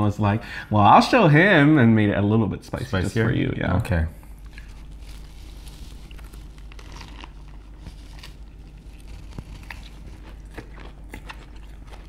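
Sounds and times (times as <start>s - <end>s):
people chewing spring rolls: 4.3s - 12.0s.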